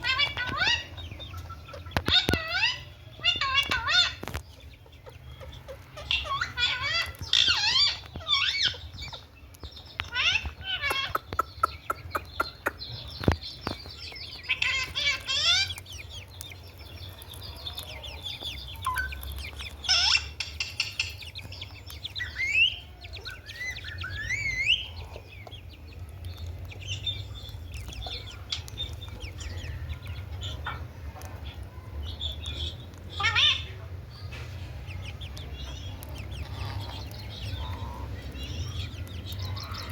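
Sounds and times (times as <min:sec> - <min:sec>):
parrot calling: 0:00.0 - 0:01.0, 0:02.0 - 0:04.2, 0:06.0 - 0:08.8, 0:10.1 - 0:12.9, 0:14.4 - 0:16.0, 0:17.9 - 0:25.3, 0:33.1 - 0:33.8.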